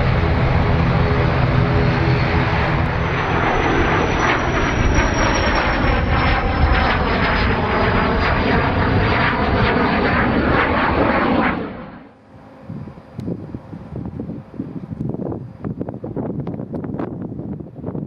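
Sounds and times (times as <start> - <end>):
high engine whine: 0.0 - 17.3
turboprop engines running: 0.0 - 18.0.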